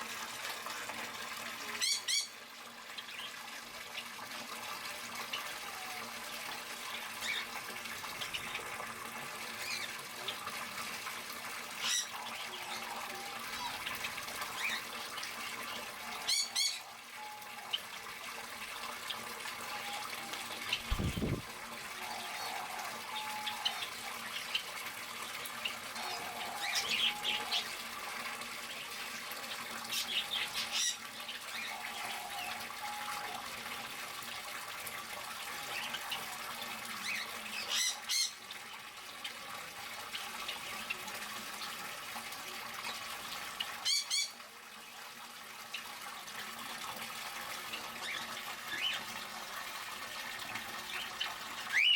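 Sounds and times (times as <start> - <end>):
mid-pitched bird calls: 1.8 - 2.4, 51.0 - 51.9
birds squawking: 16.0 - 17.0.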